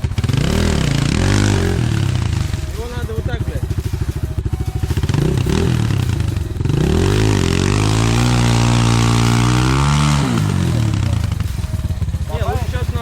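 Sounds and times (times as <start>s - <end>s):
pit bike engine revving: 0.0s - 13.0s.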